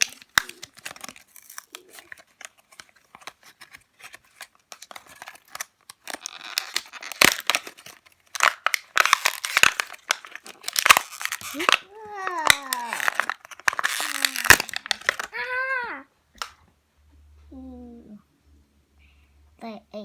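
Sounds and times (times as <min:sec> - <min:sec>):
packaging clicks: 0:00.0 - 0:15.4
packaging crinkling and tearing: 0:00.0 - 0:15.8.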